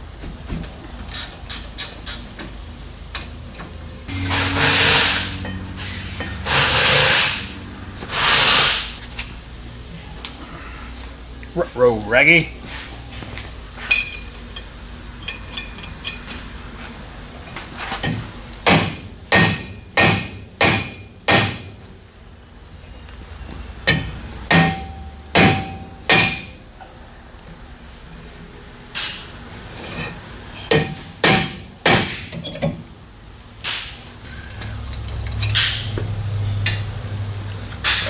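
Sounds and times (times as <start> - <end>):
hammer striking steel rotor: 4.1 - 9.0, 23.9 - 26.6, 33.7 - 37.0.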